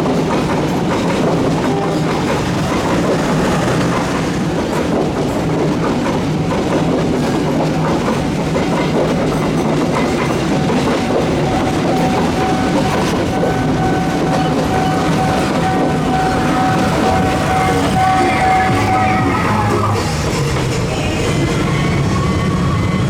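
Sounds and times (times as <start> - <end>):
train wheels clattering on rails: 0.0 - 23.0
steady high tone: 10.6 - 22.9.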